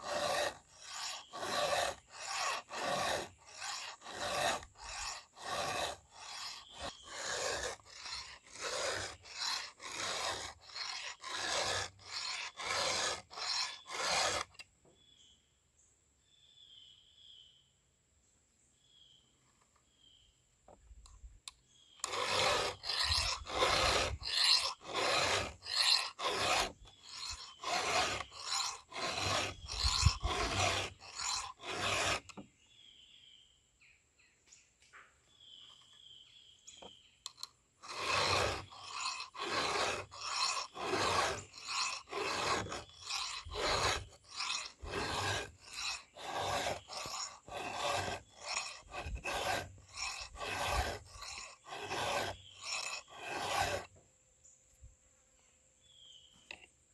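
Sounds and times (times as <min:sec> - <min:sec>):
hand file rasping on chain: 0:00.0 - 0:14.6, 0:22.0 - 0:32.4, 0:37.3 - 0:53.9.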